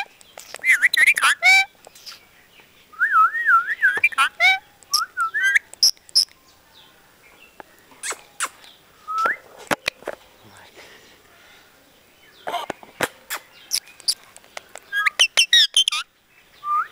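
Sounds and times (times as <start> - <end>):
parrot whistling and chirping: 0.6 - 1.7, 3.0 - 6.3, 14.9 - 16.0, 16.6 - 16.9.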